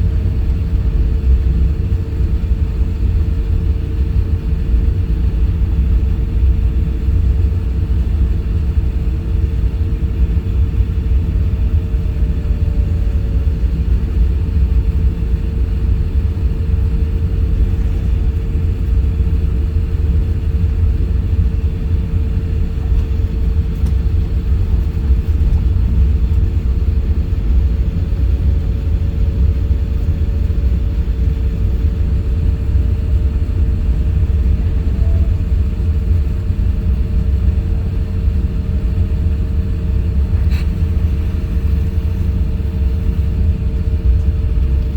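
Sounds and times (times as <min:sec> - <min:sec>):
aircraft cabin engine rumble: 0:00.0 - 0:44.9
constant hum: 0:00.0 - 0:44.9.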